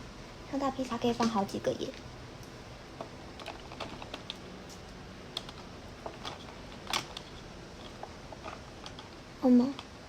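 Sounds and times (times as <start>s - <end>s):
toy boxes clicking and tapping: 3.0s - 4.4s, 5.3s - 10.0s.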